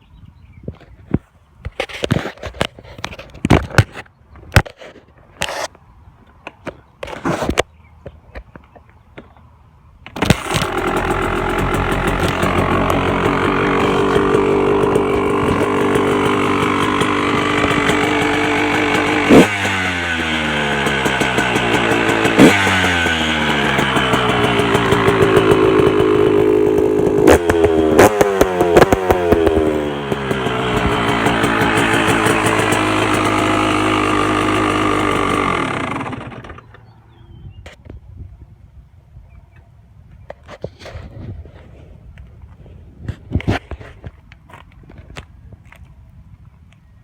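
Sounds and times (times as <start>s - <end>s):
engine revving blips: 10.2s - 37.0s
dirt bike engine idling: 10.2s - 37.4s.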